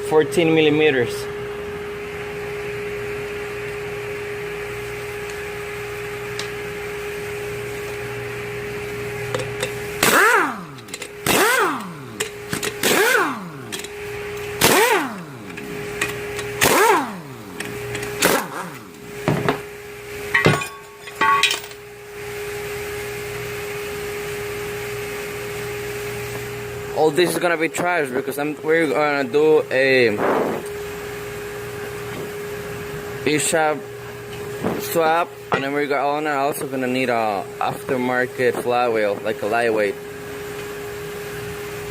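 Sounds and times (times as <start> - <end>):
steady hum: 0.0 - 41.9
impact wrench bursts: 9.3 - 21.8.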